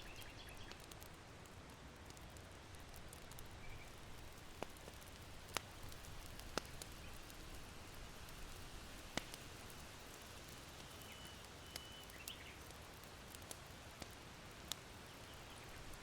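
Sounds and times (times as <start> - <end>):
faint bird chirp: 0.0 - 0.8, 10.8 - 12.6, 15.0 - 15.8
charcoal fire popping: 0.0 - 16.0
soft steady hiss: 0.0 - 16.0.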